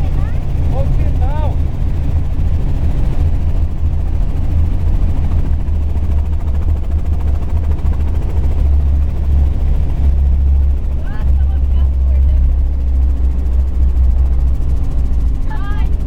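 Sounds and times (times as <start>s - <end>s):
helicopter rotor and engine drone: 0.0s - 16.0s.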